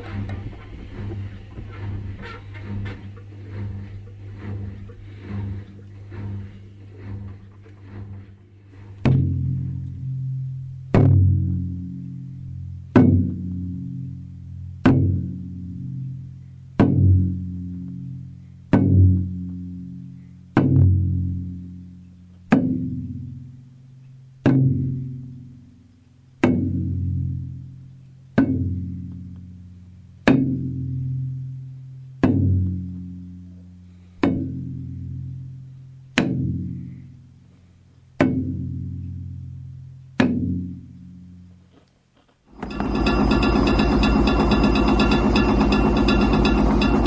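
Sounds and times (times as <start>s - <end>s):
sharp hollow percussion hits: 42.6s - 47.0s.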